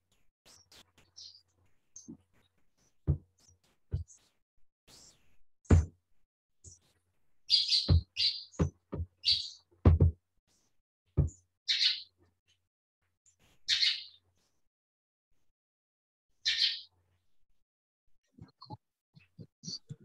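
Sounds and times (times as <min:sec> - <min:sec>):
birds chirping scratchy calls: 0:07.5 - 0:09.6, 0:13.7 - 0:14.2
dull low knocks: 0:09.9 - 0:10.2.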